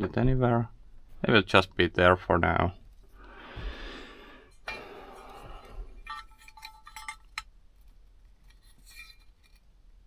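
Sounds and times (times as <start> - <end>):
rustling: 5.0 - 10.0
light metallic clinks and taps: 6.0 - 7.5.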